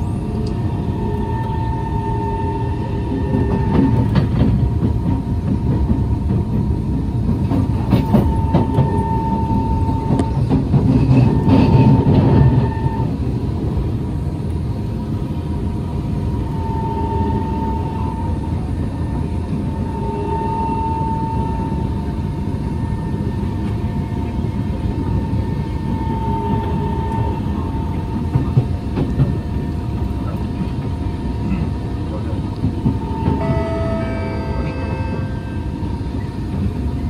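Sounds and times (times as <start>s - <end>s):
train wheels rumbling on rail: 0.0s - 37.0s
train whine: 0.0s - 37.0s
train wheel clicks: 3.1s - 13.0s.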